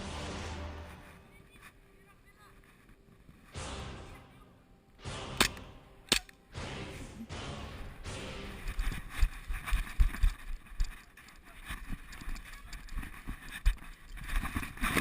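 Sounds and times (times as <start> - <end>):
rustling handling noise: 8.6 - 15.0.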